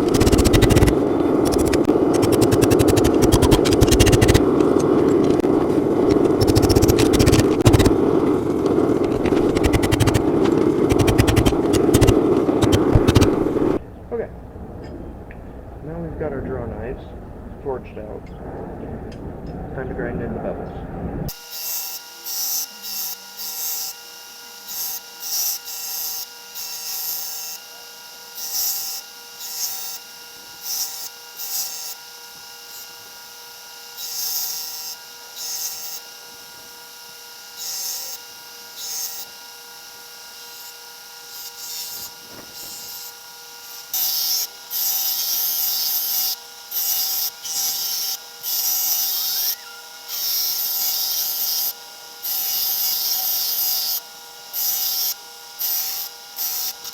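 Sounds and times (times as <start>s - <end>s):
blade grinding hiss: 0.0s - 13.8s
grinder motor hum: 0.0s - 20.2s, 21.3s - 56.9s.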